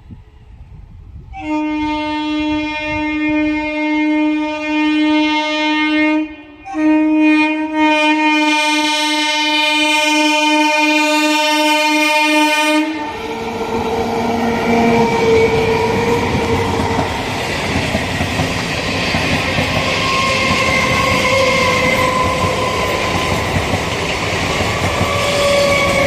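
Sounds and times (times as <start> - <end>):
train horn blasts: 1.3 - 16.3, 19.7 - 23.5, 24.9 - 26.0
train running noise: 8.9 - 26.0.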